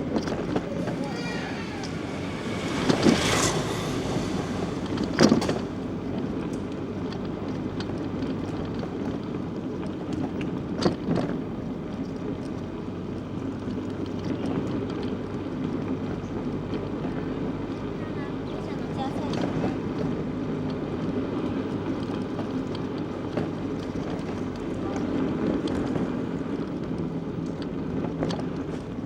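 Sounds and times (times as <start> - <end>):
bicycle tyres on road: 0.0 - 29.0.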